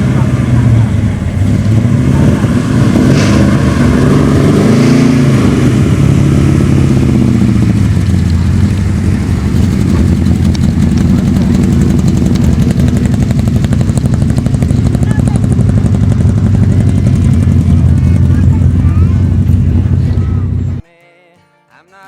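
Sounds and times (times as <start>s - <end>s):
vehicle engine idling: 0.0s - 20.8s.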